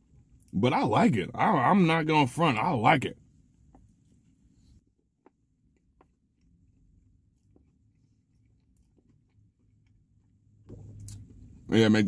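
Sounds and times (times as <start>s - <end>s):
faint low hum: 0.0s - 12.0s
closed-mouth chewing: 5.7s - 11.6s.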